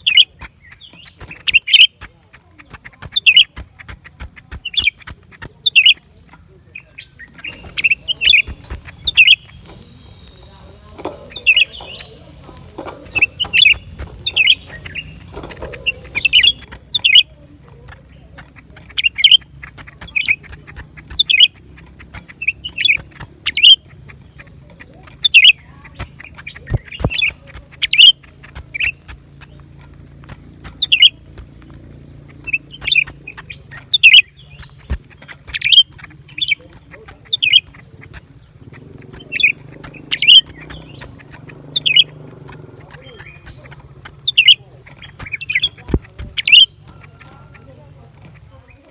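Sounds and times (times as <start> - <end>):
faint low hum: 5.6 - 18.4
bird calling high sharp notes: 6.8 - 17.3, 18.6 - 29.1, 32.3 - 48.8.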